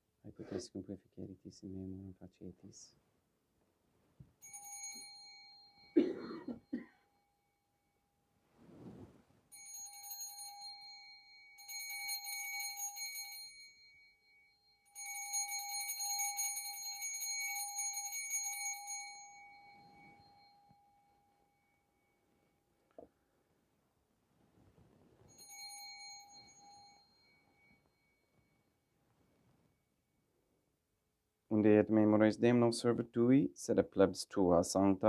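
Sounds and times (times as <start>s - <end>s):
bell ringing: 4.4s - 7.2s, 9.5s - 22.7s, 25.2s - 28.9s
soft rustling: 8.3s - 10.4s, 19.0s - 30.5s.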